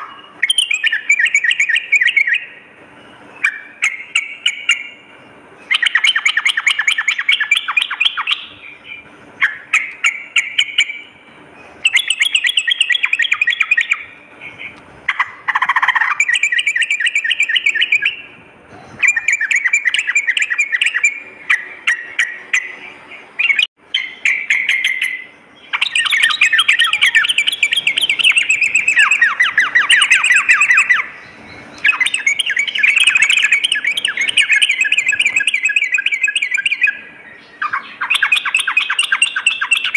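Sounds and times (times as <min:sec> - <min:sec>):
bulbul chattering song: 0:00.0 - 0:39.9.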